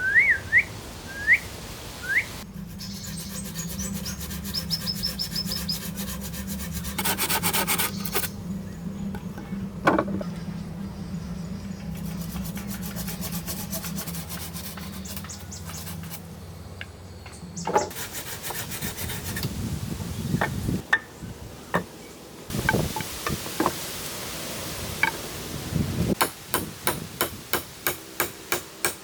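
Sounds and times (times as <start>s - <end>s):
hand tool rasping on wood: 2.6s - 8.3s, 12.1s - 16.2s.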